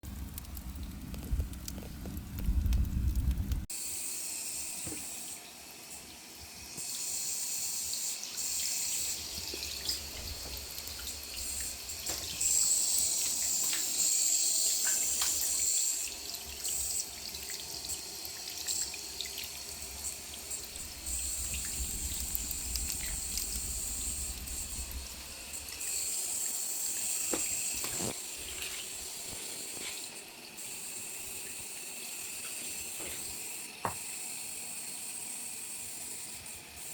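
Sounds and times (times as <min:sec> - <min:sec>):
fire crackles and pops: 0:00.0 - 0:03.7, 0:19.2 - 0:26.0
firewood burning and hissing: 0:00.0 - 0:05.1, 0:08.0 - 0:34.6.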